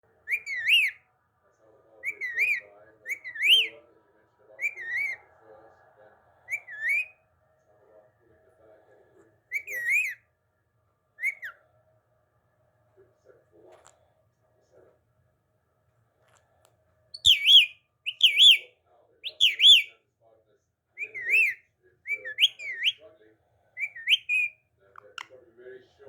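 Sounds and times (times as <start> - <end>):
faint low chatter: 0.0 - 26.0
parrot whistling: 0.2 - 1.0, 2.0 - 3.8, 4.6 - 5.3, 6.4 - 7.2, 9.5 - 10.2, 11.2 - 11.6, 17.2 - 19.9, 21.0 - 23.0, 23.8 - 25.3.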